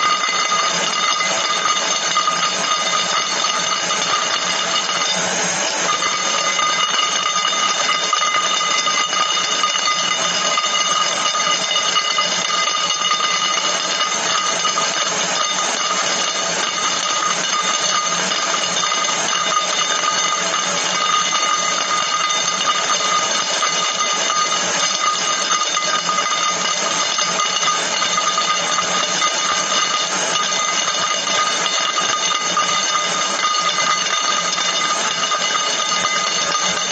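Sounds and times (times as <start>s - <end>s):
high ringing: 0.0s - 36.9s.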